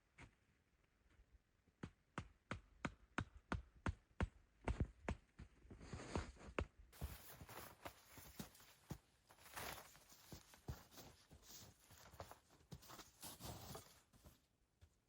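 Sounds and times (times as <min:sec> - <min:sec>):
rustling noise: 0:07.0 - 0:14.4.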